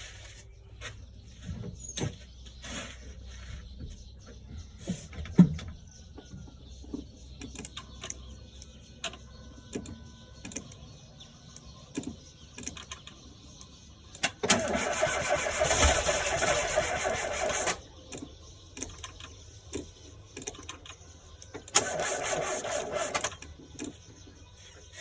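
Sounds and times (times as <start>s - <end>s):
car engine starting and running: 14.2s - 17.8s.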